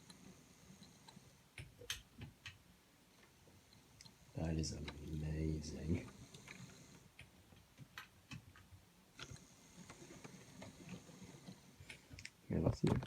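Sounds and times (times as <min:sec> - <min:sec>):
model train wheels clicking on rails: 0:09.2 - 0:12.0.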